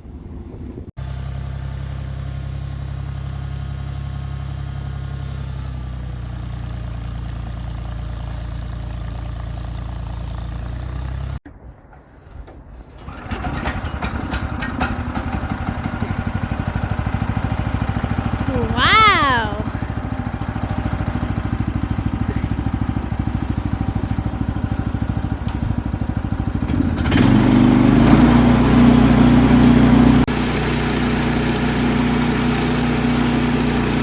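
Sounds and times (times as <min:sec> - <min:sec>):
small gasoline engine running: 0:01.0 - 0:11.4, 0:13.0 - 0:34.0.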